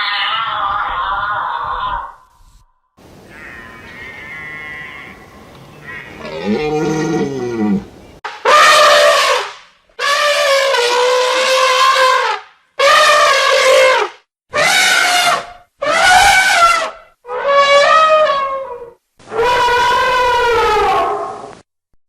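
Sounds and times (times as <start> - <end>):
elephant trumpeting: 3.2 - 21.5.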